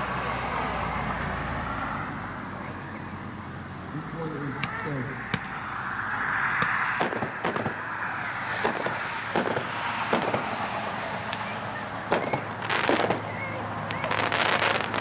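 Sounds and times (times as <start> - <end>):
firework bangs: 4.0 - 15.0
firework launch hiss: 7.0 - 15.0.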